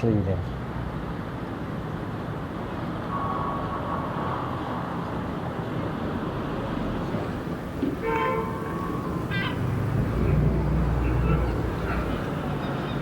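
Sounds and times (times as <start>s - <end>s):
city street traffic rumble: 0.0s - 13.0s
faint thin tone: 3.1s - 4.5s.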